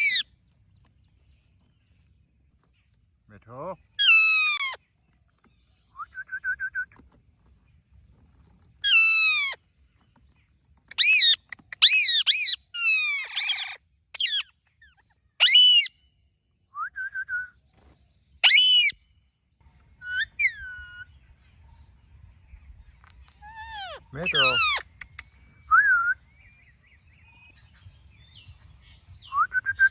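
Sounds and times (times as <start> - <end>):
parrot screeching: 0.0 - 0.2, 4.0 - 4.8, 8.8 - 9.6, 10.9 - 14.5, 15.4 - 15.9, 18.4 - 19.0, 20.0 - 21.0, 23.4 - 24.9
soft rapid parrot trill: 0.0 - 0.3, 4.0 - 4.8, 8.8 - 9.6, 10.9 - 15.9, 18.4 - 19.0, 20.0 - 21.0, 23.4 - 25.2.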